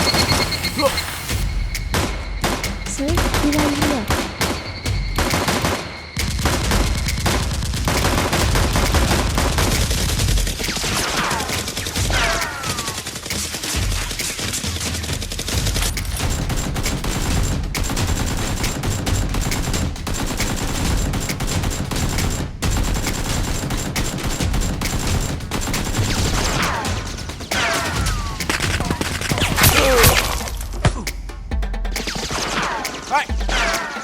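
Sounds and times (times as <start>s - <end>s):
falling whistles: 0.0s - 8.2s
rapid gunfire: 0.0s - 31.0s, 31.8s - 34.0s.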